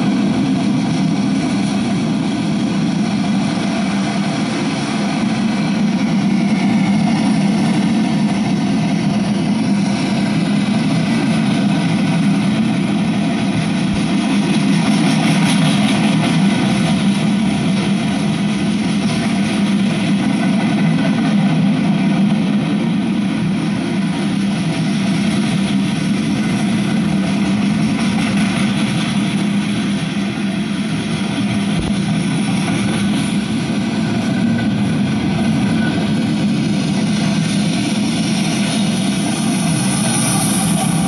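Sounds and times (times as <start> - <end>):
freight train wheels rumbling: 0.0 - 41.0.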